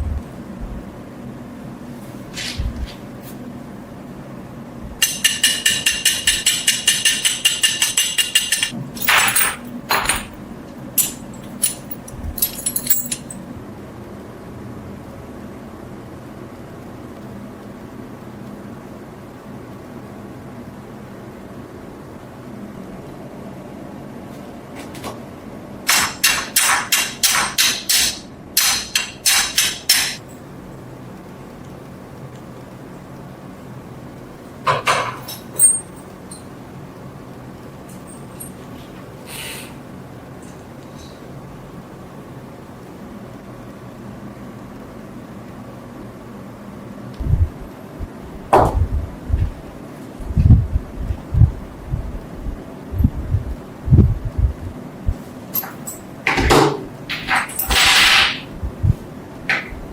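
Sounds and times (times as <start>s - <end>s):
hammer tapping on steel: 5.0s - 9.4s
hammer striking metal: 5.0s - 10.4s, 25.9s - 30.2s.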